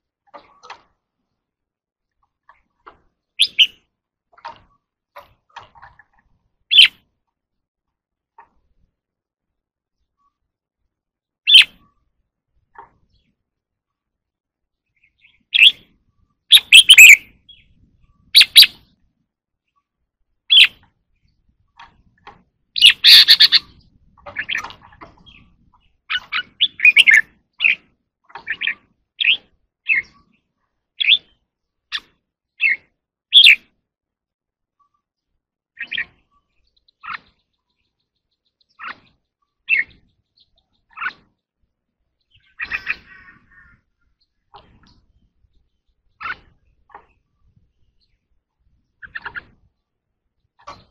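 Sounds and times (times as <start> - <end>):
bulbul singing: 3.4 - 3.9, 6.7 - 7.0, 11.5 - 12.0, 14.9 - 19.0, 20.5 - 20.9, 22.8 - 27.9.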